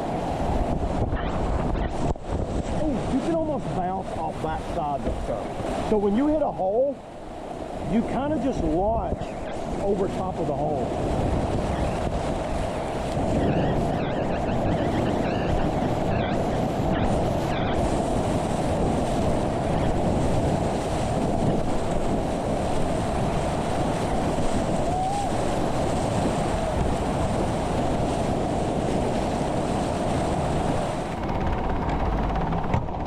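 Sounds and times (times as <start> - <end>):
whitewater rapids rushing: 22.7 - 31.2.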